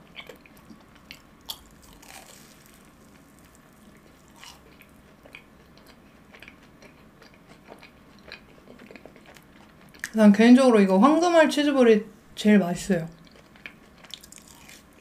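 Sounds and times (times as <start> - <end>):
closed-mouth chewing: 0.0 - 10.2, 13.1 - 15.0.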